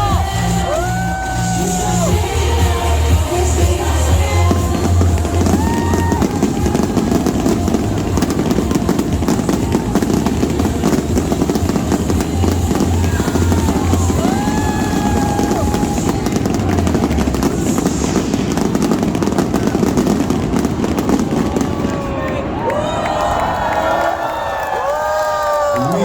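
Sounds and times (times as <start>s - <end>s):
music with throbbing bass: 0.0s - 19.3s
fireworks crackling: 0.0s - 26.0s.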